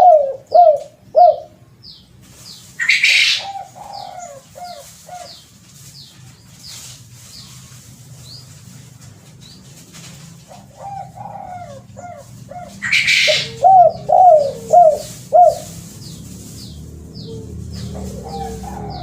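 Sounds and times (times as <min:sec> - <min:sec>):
dove cooing: 0:00.0 - 0:01.6, 0:02.8 - 0:05.4, 0:10.4 - 0:15.8, 0:16.6 - 0:19.0.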